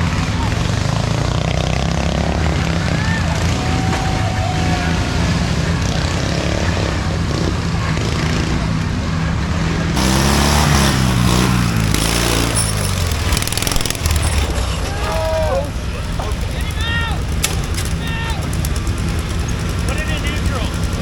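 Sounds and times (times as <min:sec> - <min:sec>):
lawn mower engines running: 0:00.0 - 0:21.0
engine revving: 0:10.0 - 0:21.0.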